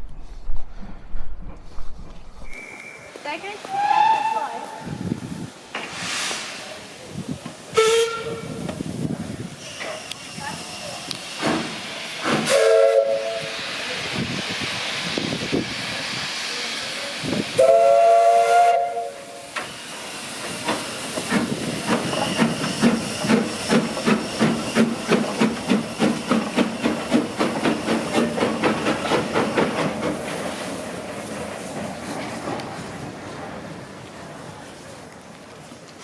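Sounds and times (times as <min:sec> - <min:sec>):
steam hissing: 0:00.0 - 0:34.5
steam locomotive whistle: 0:02.5 - 0:04.9, 0:07.7 - 0:08.7, 0:09.6 - 0:13.8, 0:17.5 - 0:20.0.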